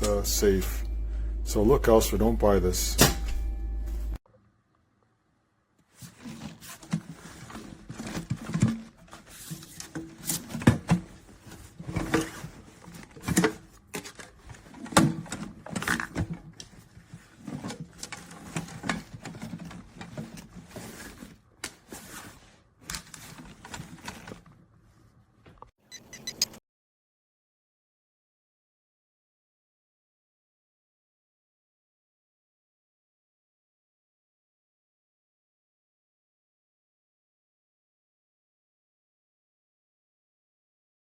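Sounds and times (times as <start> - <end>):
objects being handled: 5.8 - 26.6.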